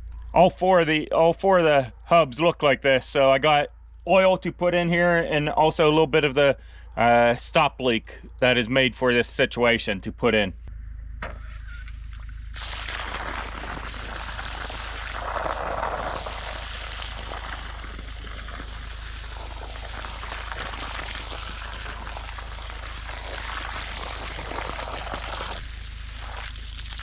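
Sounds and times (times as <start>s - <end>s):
water pouring: 12.5s - 27.0s.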